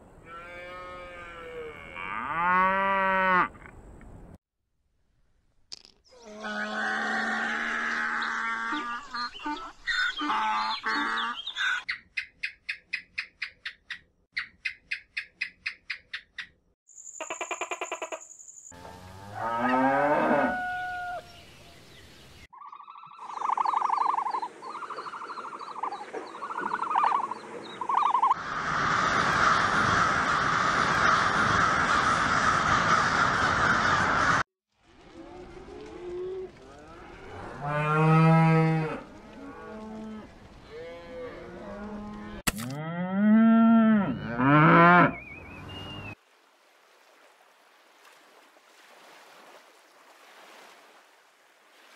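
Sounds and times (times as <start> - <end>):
cattle mooing: 0.3 - 3.5, 18.8 - 21.2, 35.8 - 45.2
flock calling: 22.5 - 28.4.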